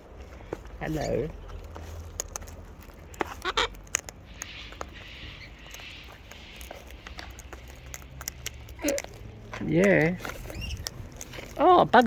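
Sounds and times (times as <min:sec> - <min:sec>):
soft raspy sound: 0:00.0 - 0:12.0.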